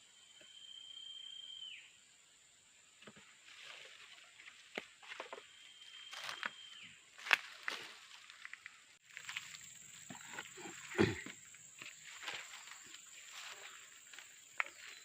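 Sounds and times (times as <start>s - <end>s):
high insect drone: 5.8s - 6.5s, 7.2s - 15.0s.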